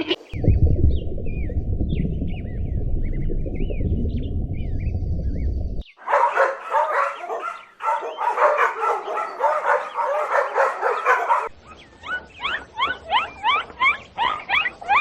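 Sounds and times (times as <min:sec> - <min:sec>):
dogs yelping and whining: 0:06.1 - 0:15.0.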